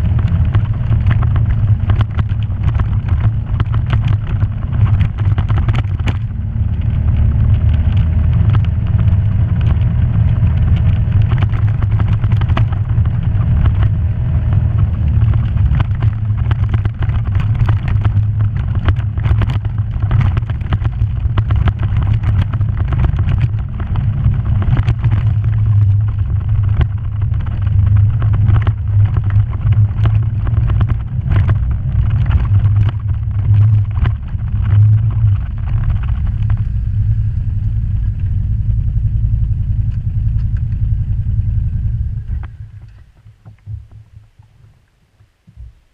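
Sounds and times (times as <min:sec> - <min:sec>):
sharp knocks and rattles: 0:00.0 - 0:36.7
off-road vehicle engine droning: 0:00.0 - 0:44.5.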